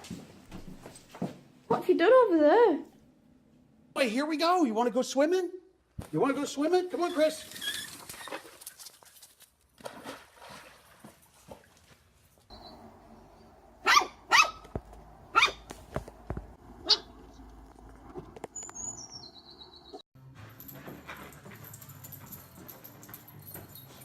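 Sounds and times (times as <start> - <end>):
dog barking: 13.8 - 14.7, 15.3 - 15.7, 16.8 - 17.2.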